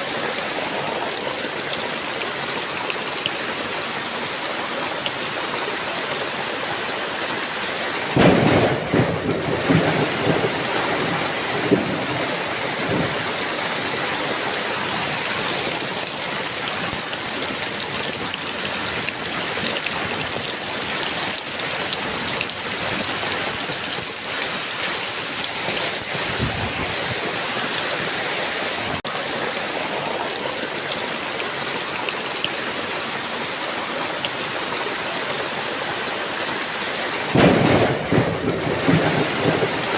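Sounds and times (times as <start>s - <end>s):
heavy rain falling: 0.0s - 39.9s
thunder clap and rumble: 8.1s - 14.1s, 25.6s - 27.4s, 37.3s - 39.9s.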